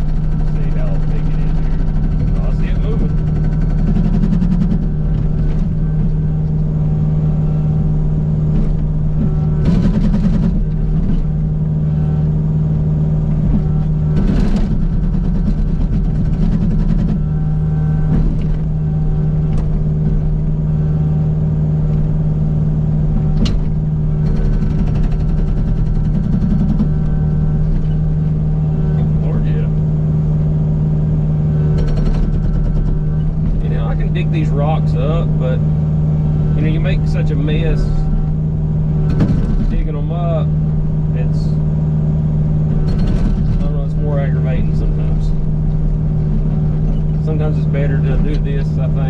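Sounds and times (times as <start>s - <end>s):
hydraulic hammer pounding rock: 0.0s - 6.6s, 7.2s - 11.4s, 13.2s - 20.4s, 23.2s - 29.7s, 31.5s - 35.6s, 36.4s - 38.4s, 39.0s - 40.6s, 42.7s - 49.0s
diesel engine running under load: 0.0s - 49.0s.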